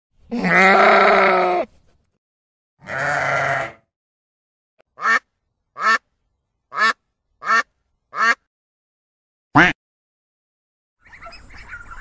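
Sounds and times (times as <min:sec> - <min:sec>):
sheep bleating: 0:00.3 - 0:01.7, 0:02.8 - 0:03.9
duck quacking: 0:05.0 - 0:06.0, 0:06.7 - 0:08.5, 0:09.6 - 0:09.8.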